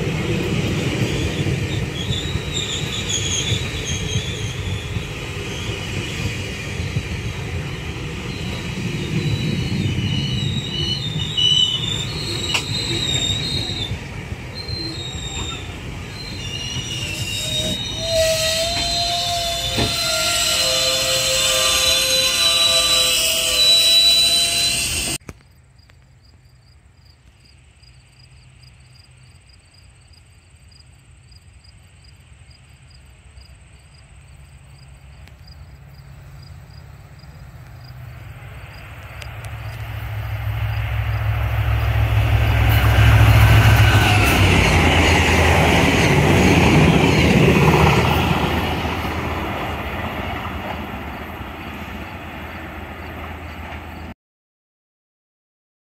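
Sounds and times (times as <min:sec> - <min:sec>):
passenger train passing: 0:00.0 - 0:25.2, 0:30.6 - 0:54.1
train passing close by: 0:00.0 - 0:25.2, 0:27.5 - 0:54.2.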